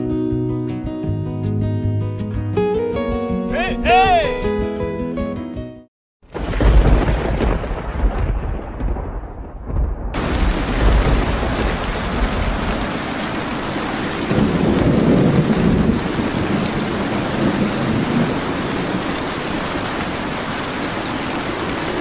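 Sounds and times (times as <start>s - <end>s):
rolling thunder: 6.3s - 19.1s
heavy rain: 6.3s - 22.0s.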